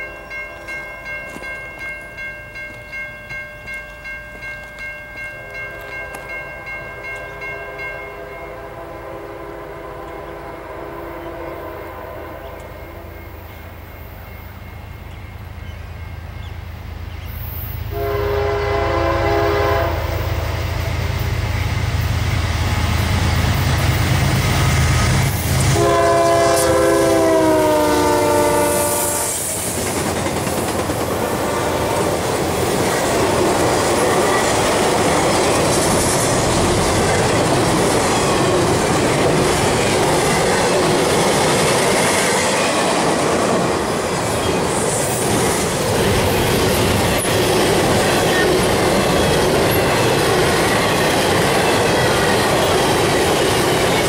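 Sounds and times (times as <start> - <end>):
locomotive engines rumbling: 2.7 - 54.0
train horn blasts: 7.3 - 13.4, 17.9 - 21.3, 25.4 - 29.6, 31.2 - 32.2.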